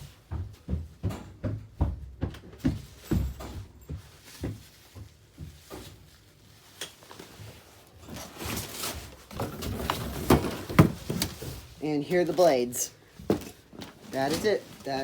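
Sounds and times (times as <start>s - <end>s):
light knocks and clunks: 0.0s - 6.0s
packaging rustling: 4.1s - 15.0s.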